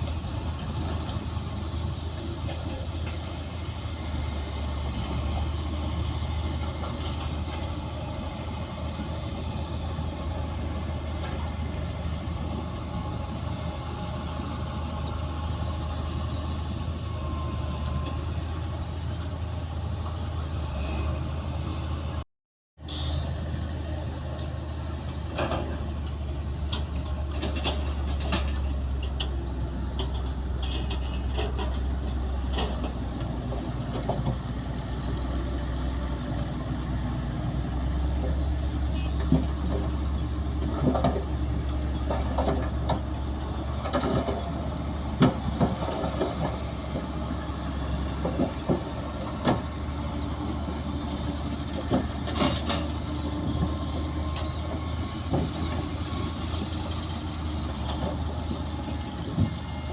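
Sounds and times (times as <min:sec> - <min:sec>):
bulldozer diesel engine droning: 0:00.0 - 0:22.2, 0:22.8 - 0:59.9
metallic clanks and knocks: 0:25.3 - 0:34.4, 0:40.6 - 0:43.2, 0:51.8 - 0:54.5.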